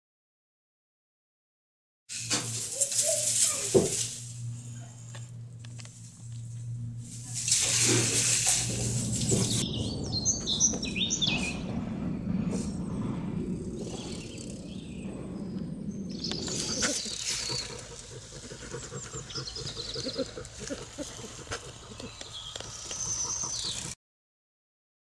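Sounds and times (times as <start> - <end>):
straw rustling: 2.1 - 9.6
small birds chirping: 9.3 - 11.7, 12.7 - 24.0.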